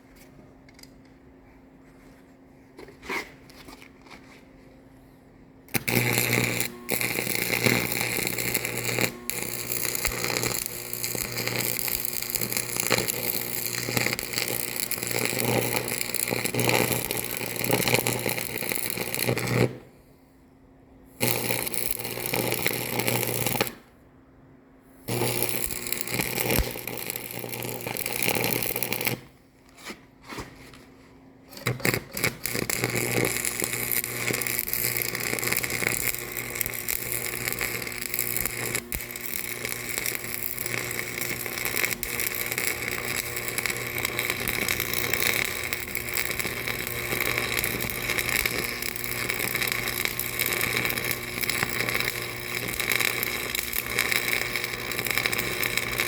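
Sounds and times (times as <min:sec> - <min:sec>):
loud power tool running: 0:05.8 - 0:19.7, 0:31.6 - 0:56.0.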